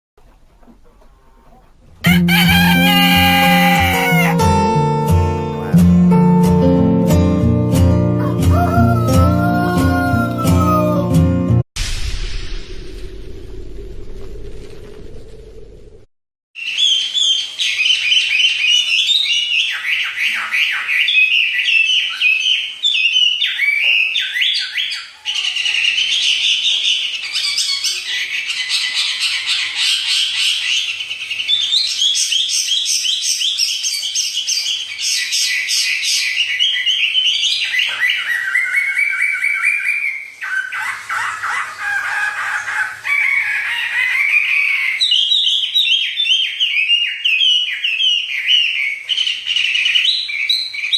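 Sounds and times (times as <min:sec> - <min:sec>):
songbird singing: 0:16.6 - 0:50.9.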